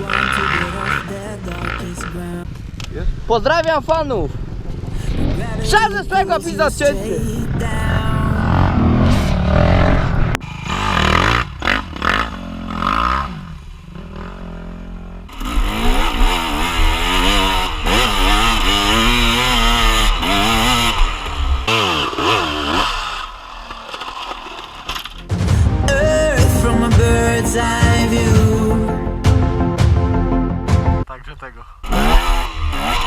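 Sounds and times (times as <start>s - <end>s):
dirt bike engine revving: 8.4s - 23.2s.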